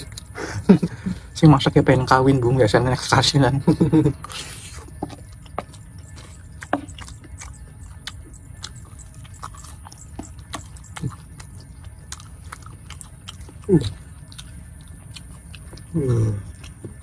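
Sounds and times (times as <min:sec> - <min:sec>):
wet chewing and lip smacks: 0:04.1 - 0:17.0.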